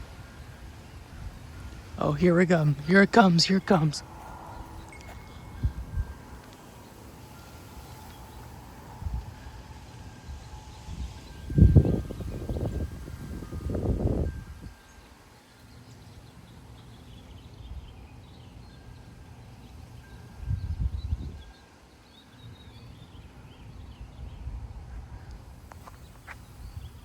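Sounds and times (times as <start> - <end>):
faint birds chirping: 0.0 - 13.6, 14.2 - 27.0
wind buffeting microphone: 0.0 - 15.3, 20.4 - 21.6, 23.2 - 27.0.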